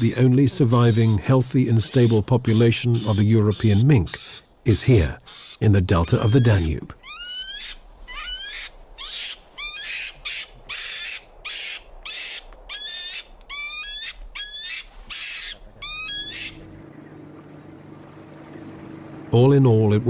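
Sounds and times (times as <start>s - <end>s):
mink squealing and hissing: 0.5s - 4.5s, 5.2s - 16.6s.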